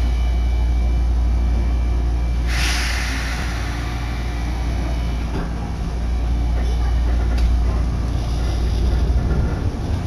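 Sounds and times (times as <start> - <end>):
train equipment humming: 0.0 - 10.0
compressed air hiss: 2.5 - 4.8.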